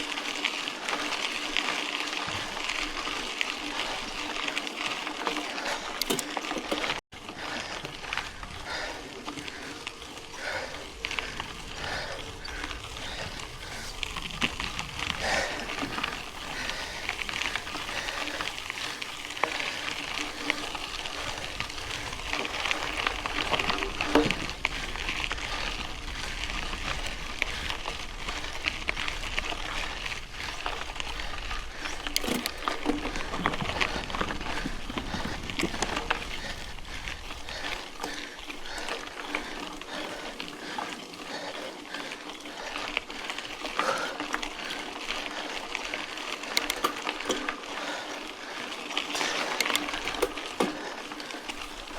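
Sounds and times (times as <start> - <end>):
bike frame rattling: 0.0 - 51.9
bike tyres crunching on gravel: 0.0 - 51.9
small clicks: 5.2 - 7.0, 30.6 - 34.2, 46.3 - 47.7, 49.1 - 51.9.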